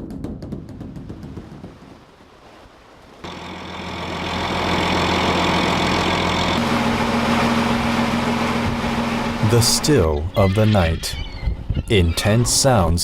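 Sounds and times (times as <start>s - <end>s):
boat engine running: 3.2s - 12.6s.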